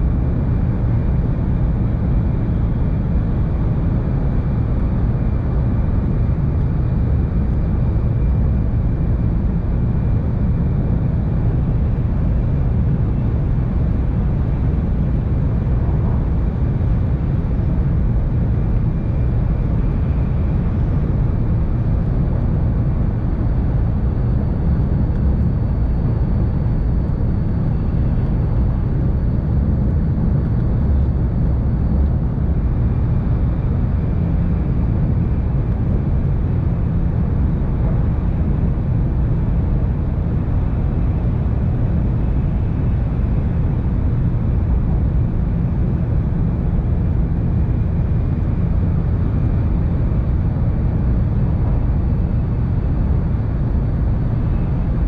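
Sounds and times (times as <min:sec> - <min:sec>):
faint high whine: 0:00.0 - 0:55.0
train rumbling at speed: 0:12.2 - 0:55.0.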